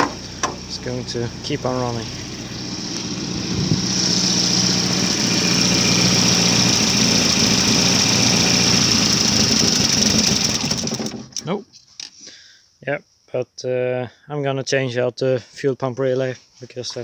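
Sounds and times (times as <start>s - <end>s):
car engine idling with hiss: 0.0s - 10.3s.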